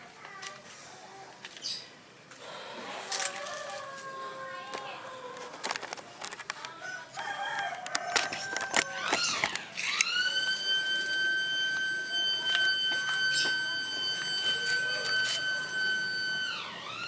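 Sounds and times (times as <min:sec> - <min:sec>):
rooster crowing: 0:03.2 - 0:05.6, 0:06.8 - 0:09.4.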